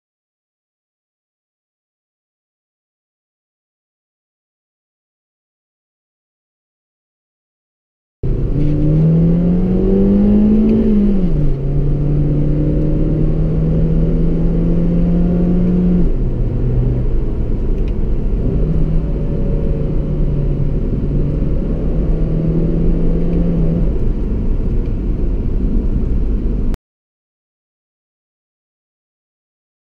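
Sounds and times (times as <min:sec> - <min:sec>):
car engine accelerating and shifting: 0:08.2 - 0:26.8
low road rumble: 0:08.2 - 0:26.8.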